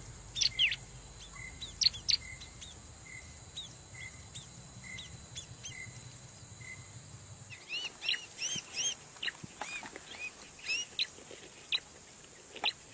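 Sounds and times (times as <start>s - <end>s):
bird chirping and chattering: 0.4s - 2.8s, 7.5s - 11.9s.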